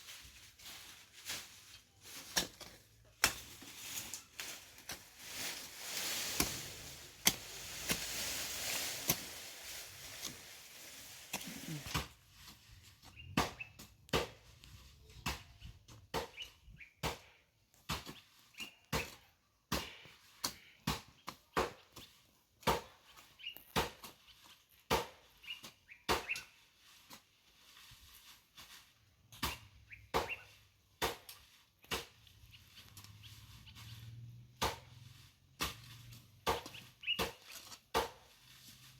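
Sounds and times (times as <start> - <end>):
hand hoe digging into soil: 0.8 - 15.5, 17.9 - 38.9
birds chirping: 36.7 - 37.2.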